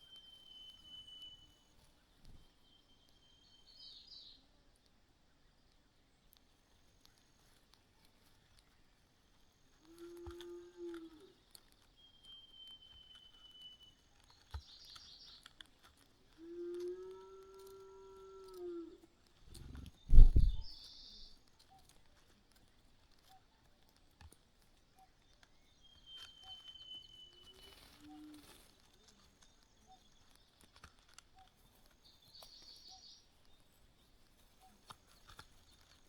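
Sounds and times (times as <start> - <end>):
loud low thump: 19.7 - 20.7.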